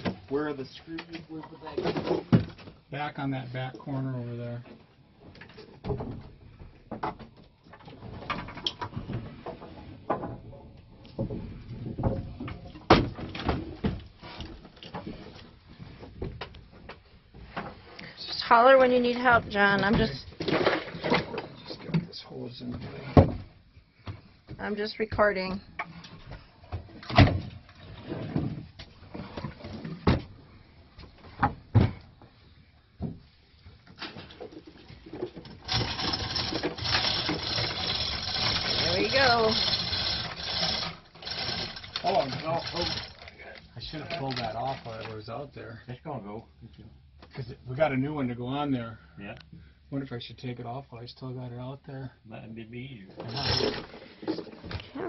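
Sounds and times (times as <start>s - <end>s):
knocks and thuds of hard objects: 1.8s - 2.8s, 5.8s - 7.4s, 11.1s - 14.1s, 29.9s - 30.4s, 31.3s - 32.3s
tools and parts clattering: 19.6s - 21.9s, 33.9s - 45.1s, 53.2s - 54.6s.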